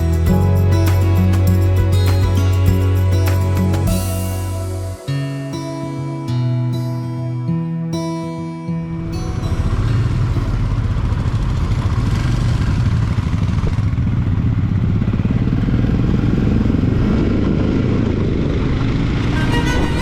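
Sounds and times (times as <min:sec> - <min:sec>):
music: 0:00.0 - 0:10.7, 0:19.3 - 0:20.0
motorcycle engine running: 0:09.2 - 0:20.0.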